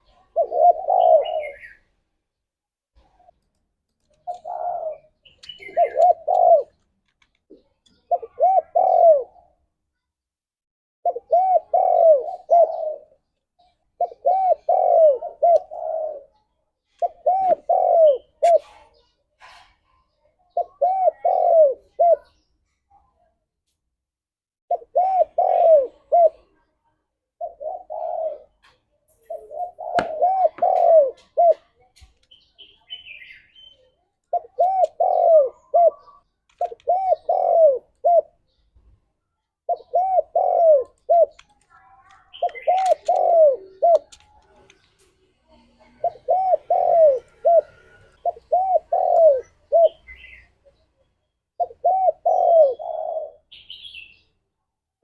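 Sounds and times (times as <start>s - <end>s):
dove cooing: 0.0s - 1.8s, 4.2s - 6.8s, 7.5s - 9.6s, 11.0s - 19.1s, 20.5s - 22.4s, 24.7s - 26.6s, 27.4s - 31.7s, 34.3s - 38.5s, 39.7s - 41.4s, 42.3s - 50.8s, 51.6s - 54.2s
faint small bird chirps: 0.0s - 2.0s, 3.0s - 10.1s, 24.7s - 54.4s.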